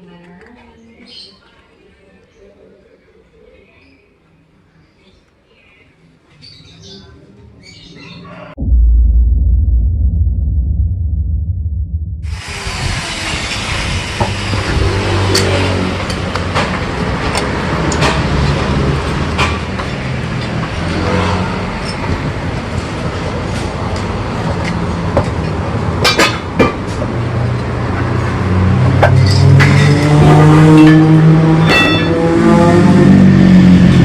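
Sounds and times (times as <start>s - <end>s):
motorcycle engine idling and revving: 27.9s - 34.0s.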